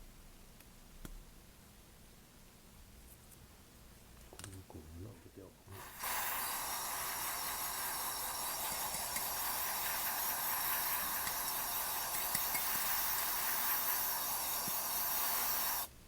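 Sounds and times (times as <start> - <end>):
spray jet hissing: 5.7 - 15.9.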